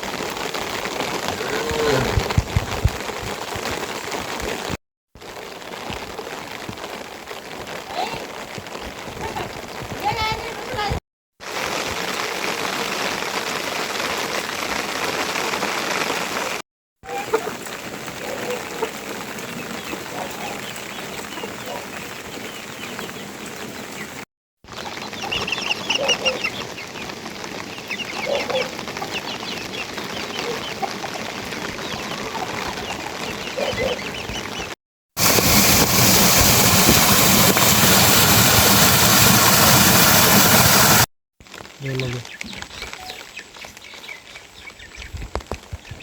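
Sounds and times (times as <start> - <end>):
steady rain falling: 0.0 - 46.0
chickens clucking: 17.1 - 22.0, 24.8 - 26.8, 27.8 - 34.7.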